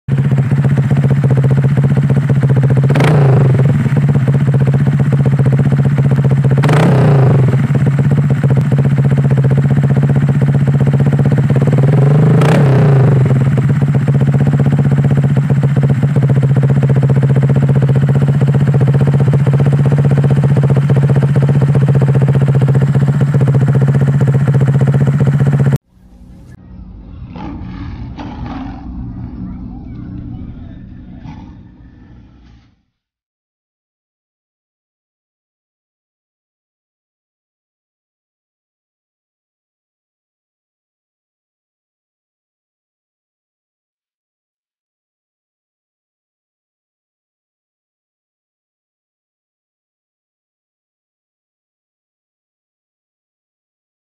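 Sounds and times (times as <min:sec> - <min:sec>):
scooter engine idling and revving: 0:00.1 - 0:26.6.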